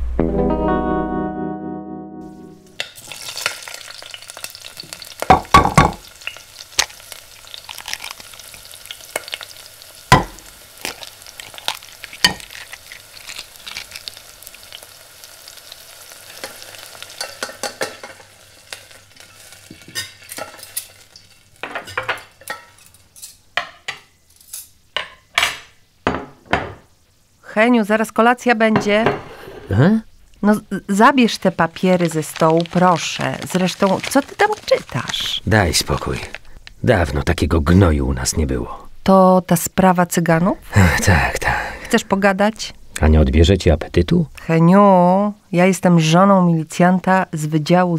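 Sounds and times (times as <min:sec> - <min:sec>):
guitar music sting: 0:00.0 - 0:02.8
food sizzling in a frying pan: 0:02.7 - 0:36.6.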